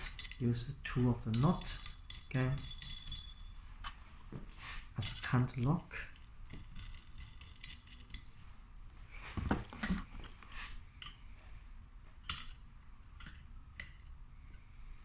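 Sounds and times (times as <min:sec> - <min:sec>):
metallic clinks of nuts and spanner: 0:00.0 - 0:04.0, 0:04.9 - 0:08.5, 0:09.7 - 0:11.4, 0:12.2 - 0:14.7.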